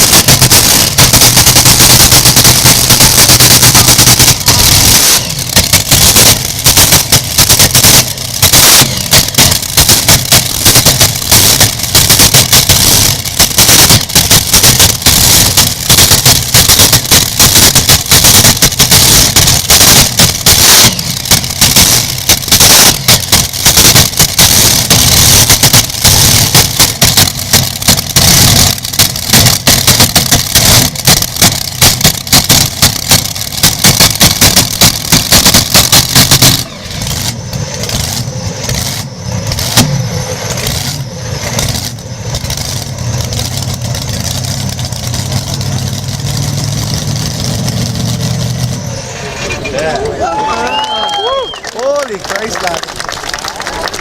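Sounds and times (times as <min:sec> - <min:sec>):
crackling exhaust reports: 0:00.0 - 0:54.0
tractor engine running loud: 0:00.0 - 0:54.0.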